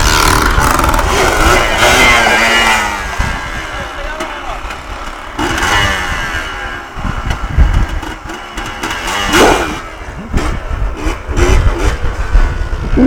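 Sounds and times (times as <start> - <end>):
quad engine revving: 0.0 - 13.0.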